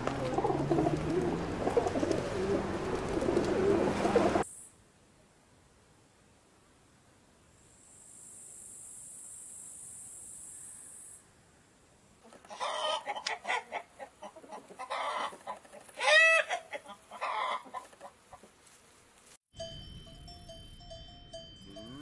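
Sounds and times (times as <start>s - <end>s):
chickens clucking: 0.0s - 4.4s, 12.2s - 18.6s
steady high hiss: 4.4s - 12.2s.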